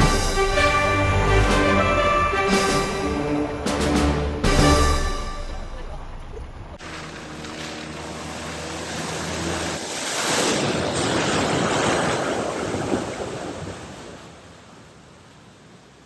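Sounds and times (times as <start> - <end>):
water splashing around car: 5.8 - 14.6.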